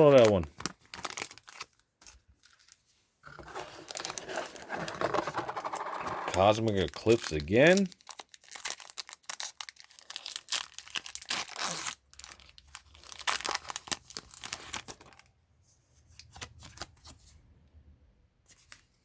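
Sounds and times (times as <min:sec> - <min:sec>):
foil wrapper tearing and crinkling: 0:00.0 - 0:02.8, 0:05.6 - 0:15.3.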